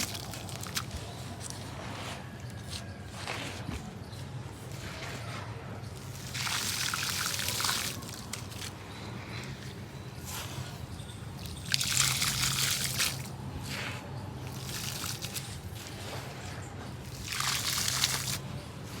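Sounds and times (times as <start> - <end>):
water poured onto gritty cement: 0.0 - 1.1, 6.0 - 9.8, 11.3 - 16.4, 17.0 - 18.4.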